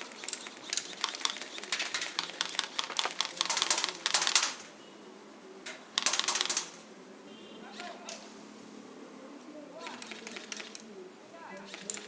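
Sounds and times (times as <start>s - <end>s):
airsoft guns firing: 0.9s - 4.6s, 6.0s - 6.8s.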